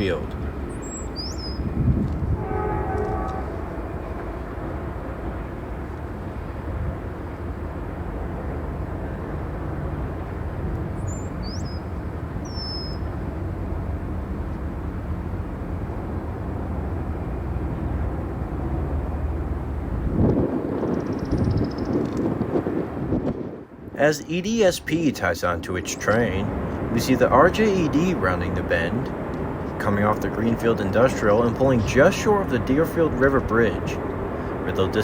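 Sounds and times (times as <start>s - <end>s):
diesel locomotive engine drone: 0.0s - 35.0s
bird chirps: 0.7s - 1.7s, 11.0s - 13.1s, 21.0s - 22.1s.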